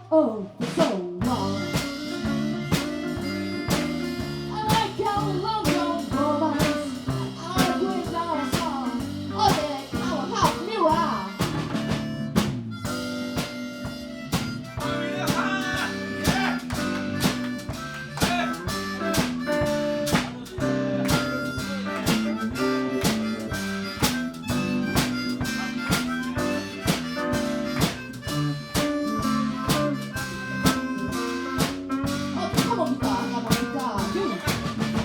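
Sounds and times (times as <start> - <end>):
guitar: 0.0 - 35.0
steady drum beat: 0.6 - 35.0
harmonica bending notes: 1.2 - 35.0.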